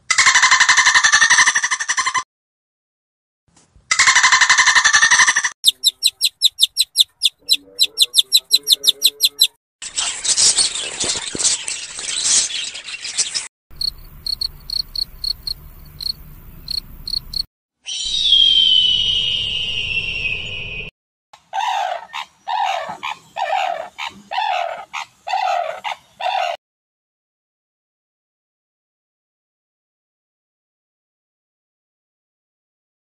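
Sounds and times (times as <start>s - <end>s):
rapid animal chirps: 5.2s - 9.6s, 13.8s - 18.1s.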